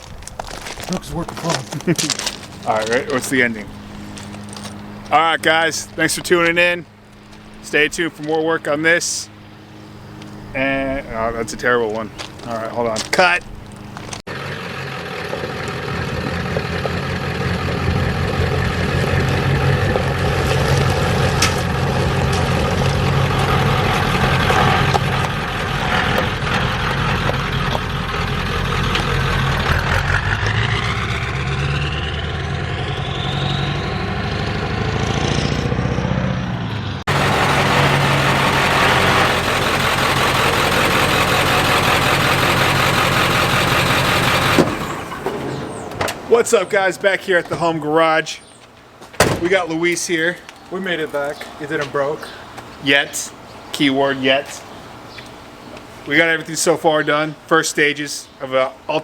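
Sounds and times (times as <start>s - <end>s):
diesel engine running: 0.0s - 48.1s
turbo whine rising in pitch: 13.4s - 46.1s.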